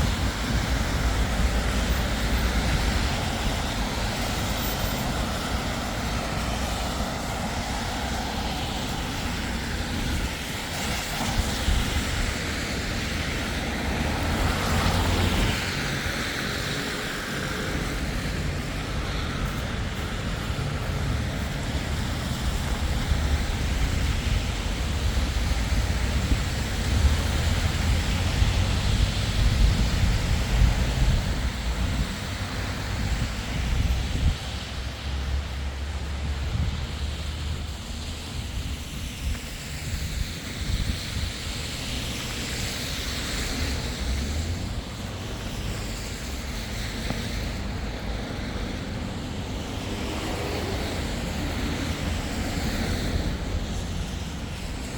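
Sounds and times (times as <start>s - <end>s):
city street traffic: 0.0s - 54.9s
wind buffeting microphone: 0.0s - 54.9s.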